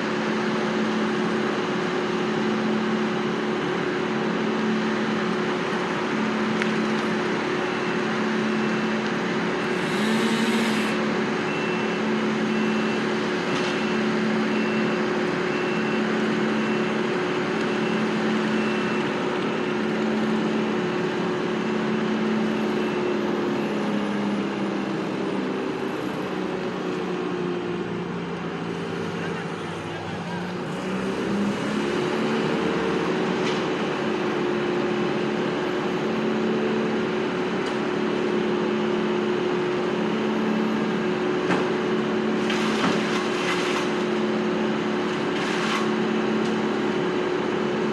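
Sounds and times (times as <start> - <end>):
heavy machine engine running: 0.0 - 47.9
reversing alarm beeping: 9.6 - 20.3, 22.4 - 23.8.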